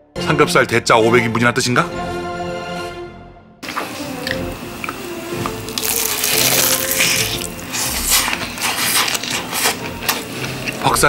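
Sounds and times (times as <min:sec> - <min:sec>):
soft background music: 0:00.0 - 0:11.0
crunchy chicken bitten and chewed: 0:05.7 - 0:10.8.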